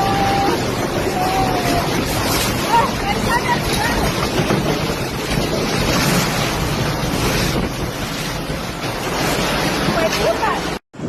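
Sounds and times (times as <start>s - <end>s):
strong wind battering microphone: 0.0s - 11.0s.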